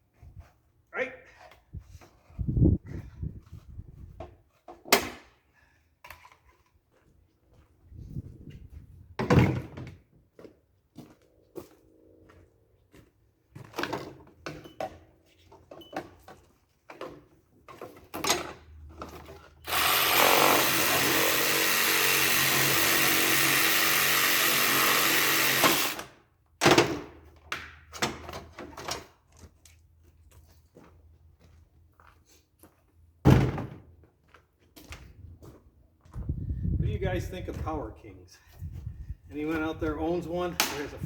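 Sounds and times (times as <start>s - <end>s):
power tool running: 19.6s - 26.2s.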